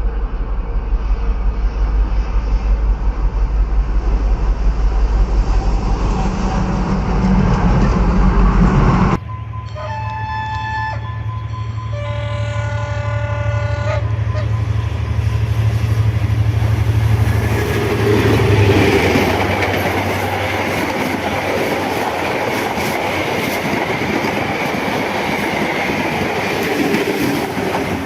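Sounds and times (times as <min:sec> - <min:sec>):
diesel engine drone: 0:00.0 - 0:23.0
train wheels clattering over rails: 0:17.2 - 0:28.0.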